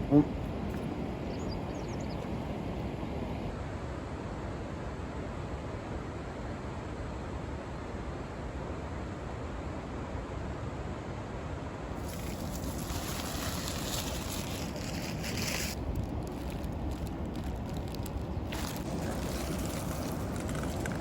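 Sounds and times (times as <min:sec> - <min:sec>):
wind buffeting microphone: 0:12.1 - 0:21.0.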